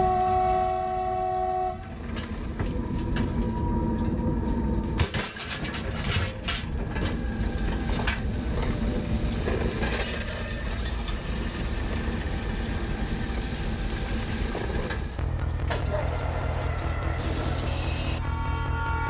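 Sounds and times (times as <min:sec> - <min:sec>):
locomotive horn chord: 0:00.0 - 0:02.2, 0:17.7 - 0:19.0
locomotive rumbling along track: 0:00.0 - 0:19.0.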